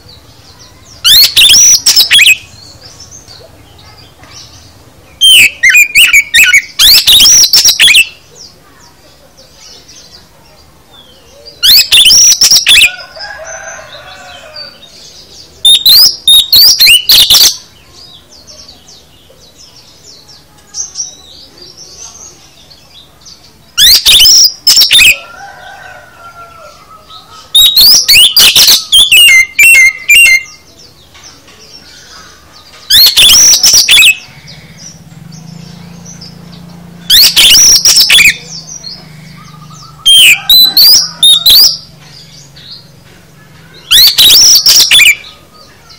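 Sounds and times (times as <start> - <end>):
bird singing high whistled phrases: 0.8 - 2.7, 5.1 - 8.2, 11.0 - 12.9, 15.6 - 18.1, 23.8 - 25.3, 26.9 - 30.7, 32.9 - 34.3, 37.1 - 38.6, 39.4 - 41.8, 43.7 - 45.8.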